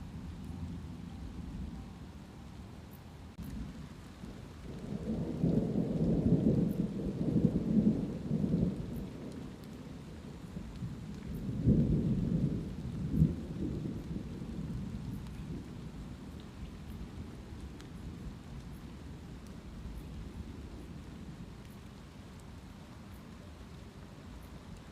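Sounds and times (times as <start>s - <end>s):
light rain: 0.0s - 24.9s
raindrop ticks: 0.1s - 1.8s, 2.4s - 24.9s
thunder rumbling: 3.4s - 21.6s.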